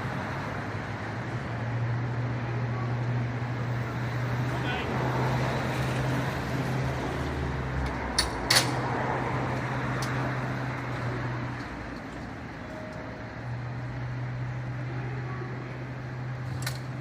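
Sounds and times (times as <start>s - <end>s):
fire truck engine running: 0.0s - 17.0s.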